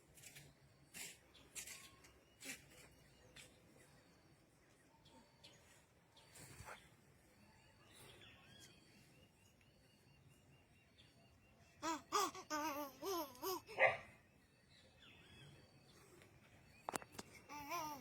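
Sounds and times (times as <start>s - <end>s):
young child babbling and laughing: 11.8s - 13.8s, 17.4s - 18.0s.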